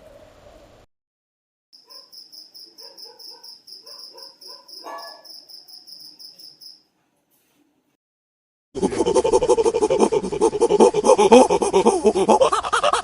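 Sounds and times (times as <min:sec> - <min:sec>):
insect chirping in high pulses: 0:01.8 - 0:06.8
fainter lower insect calls: 0:01.8 - 0:06.9.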